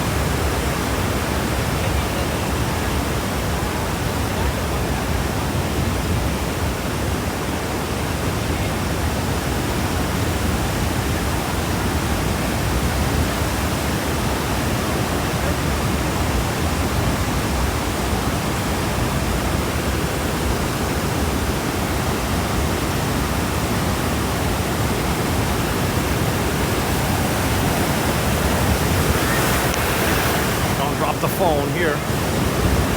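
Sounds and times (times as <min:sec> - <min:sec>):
waterfall rushing: 0:13.2 - 0:32.9.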